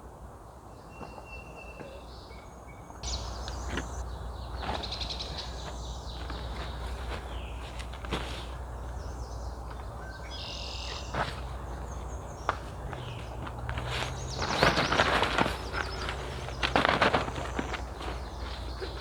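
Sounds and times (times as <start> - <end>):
bird calling: 3.0 - 7.8, 8.7 - 19.0
rustling and handling noise: 12.6 - 19.0.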